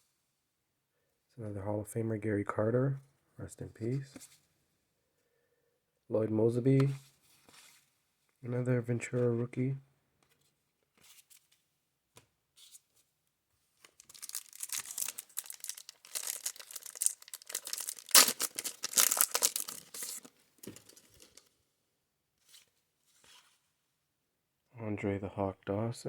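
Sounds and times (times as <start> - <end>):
plastic wrapper tearing and crinkling: 13.8 - 21.4.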